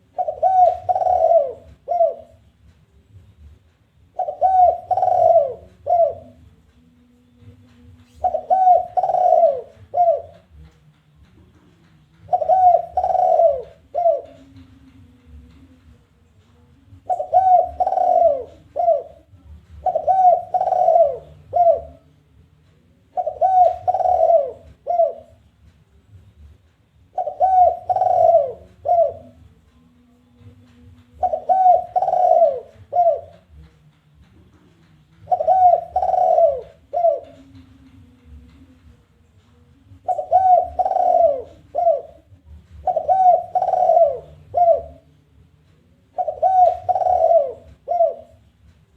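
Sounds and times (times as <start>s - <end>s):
dove cooing call: 0.0s - 2.5s, 4.1s - 6.5s, 8.1s - 10.7s, 12.2s - 15.6s, 16.9s - 22.1s, 23.1s - 25.5s, 27.1s - 29.5s, 30.4s - 33.7s, 35.2s - 38.7s, 39.9s - 45.2s, 46.0s - 48.6s.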